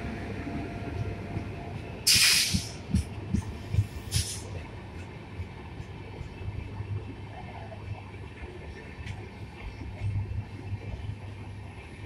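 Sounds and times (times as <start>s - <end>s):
train rumbling past: 0.0s - 12.0s
loud hiss bursts: 2.1s - 2.8s.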